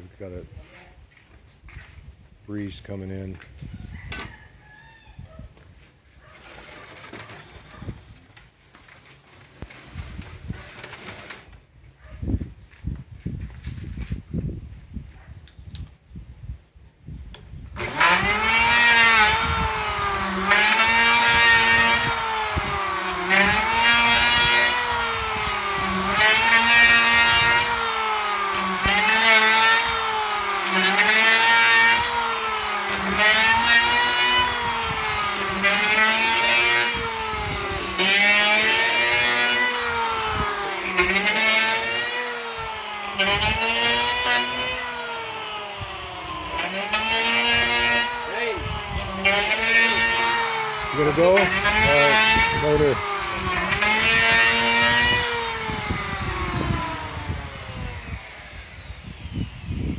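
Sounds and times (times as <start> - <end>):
electric hand planer cutting: 17.8 - 59.9.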